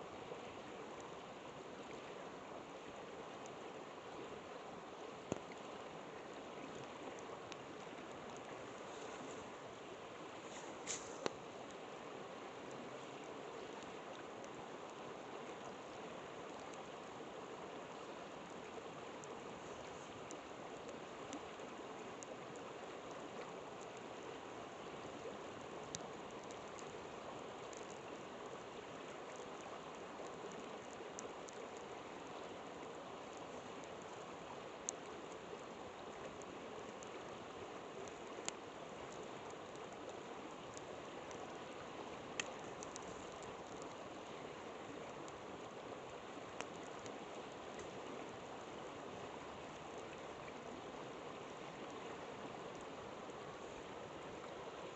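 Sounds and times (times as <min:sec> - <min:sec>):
river flowing: 0:00.0 - 0:54.9
campfire crackling and popping: 0:10.4 - 0:11.9, 0:17.8 - 0:48.6.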